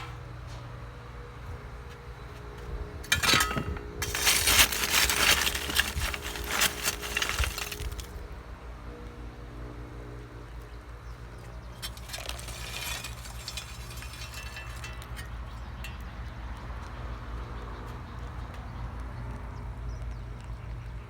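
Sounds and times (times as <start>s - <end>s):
clinking clatter of hard objects: 3.0s - 8.2s, 11.7s - 16.1s.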